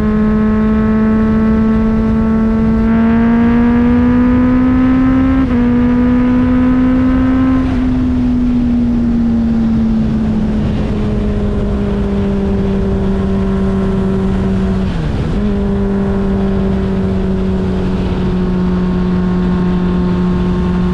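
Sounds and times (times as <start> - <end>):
motorcycle engine running: 0.0 - 20.9
wind rushing over camera: 0.0 - 20.9.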